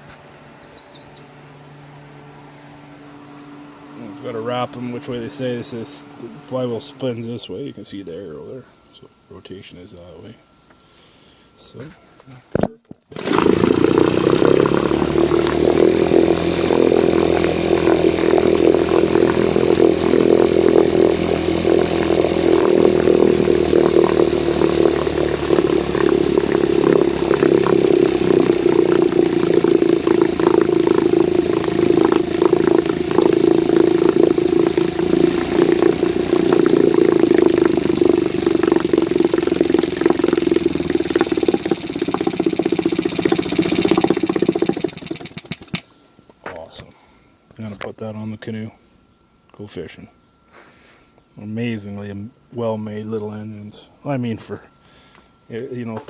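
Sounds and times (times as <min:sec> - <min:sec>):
outboard motor running: 0:00.0 - 0:07.5, 0:12.6 - 0:45.9
outboard motor pull start: 0:04.0 - 0:07.0, 0:13.0 - 0:45.9.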